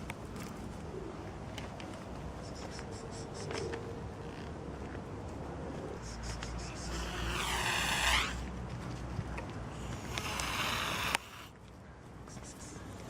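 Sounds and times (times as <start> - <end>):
cat hissing: 6.0 - 8.4, 9.7 - 11.5.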